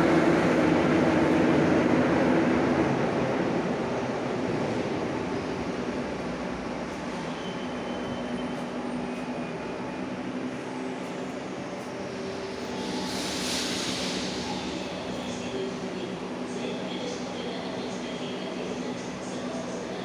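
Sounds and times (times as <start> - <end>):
metro train rumble: 0.0 - 20.0
hiss: 12.6 - 15.4.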